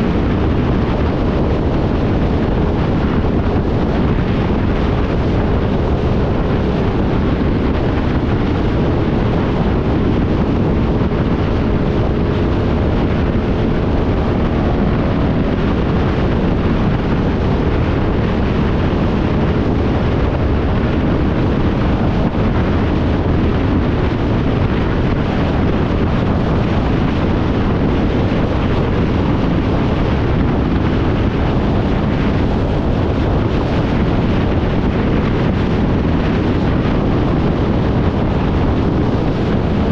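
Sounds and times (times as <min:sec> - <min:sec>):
motorcycle engine running: 0:00.0 - 0:39.9
wind rush over microphone: 0:00.0 - 0:39.9.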